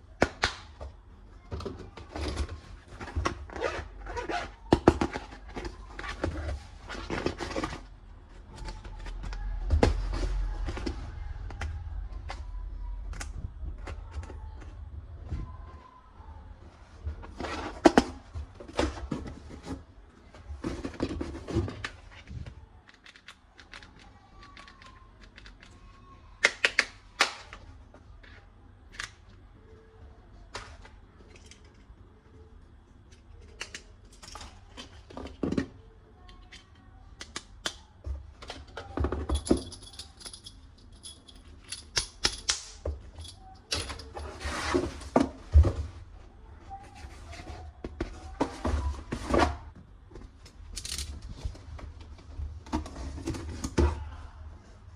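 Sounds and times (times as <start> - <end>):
plastic toy parts clicking: 22.8 - 25.8, 50.7 - 51.2.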